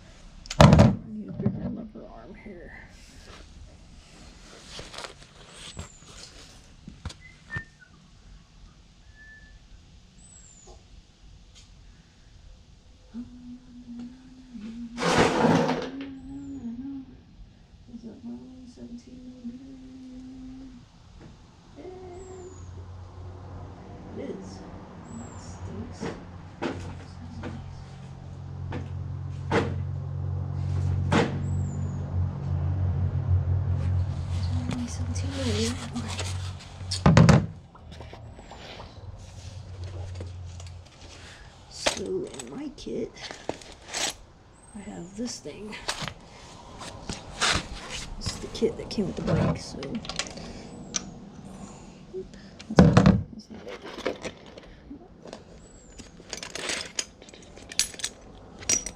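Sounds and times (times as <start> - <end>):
faint high whistle-like chirps: 7.2 - 8.1, 9.0 - 10.8
low hum: 15.7 - 54.1
handling noise: 34.2 - 44.3, 45.7 - 51.2, 52.8 - 58.9
metallic clinks of hand tools: 56.0 - 58.9.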